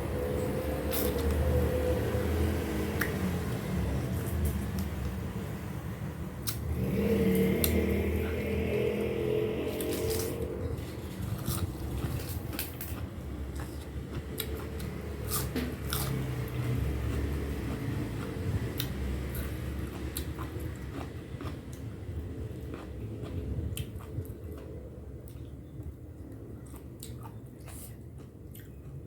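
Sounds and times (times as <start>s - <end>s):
person chewing crunchy food: 6.4s - 29.0s.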